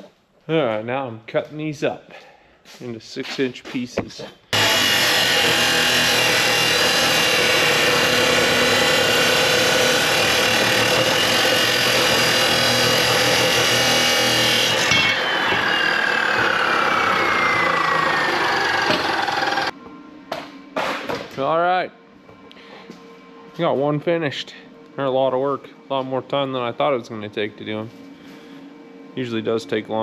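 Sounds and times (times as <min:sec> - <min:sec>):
power saw cutting metal pipe: 0:04.6 - 0:19.7
saw motor winding down whine: 0:04.6 - 0:19.7.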